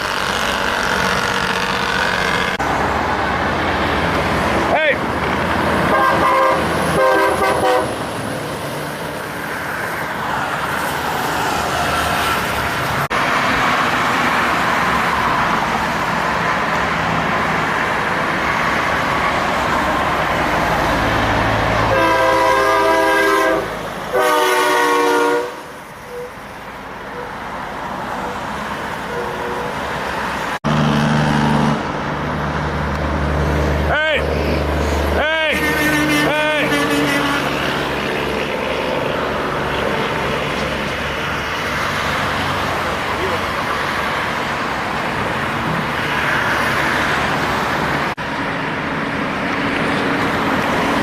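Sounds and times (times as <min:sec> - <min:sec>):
diesel truck engines rumbling: 0:00.0 - 0:51.0
truck air horn blasts: 0:05.8 - 0:08.0, 0:21.9 - 0:26.3, 0:29.0 - 0:29.8, 0:35.5 - 0:37.7.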